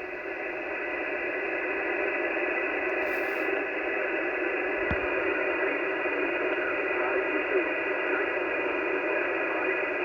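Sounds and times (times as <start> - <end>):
radio static hiss: 0.0 - 10.0
short thump: 4.8 - 5.1.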